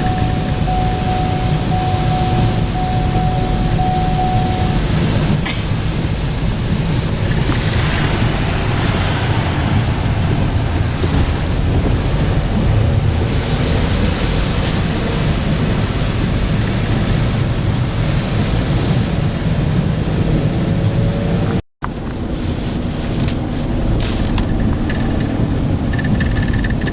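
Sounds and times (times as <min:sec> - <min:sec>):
road and wind noise inside car: 0:00.0 - 0:26.9.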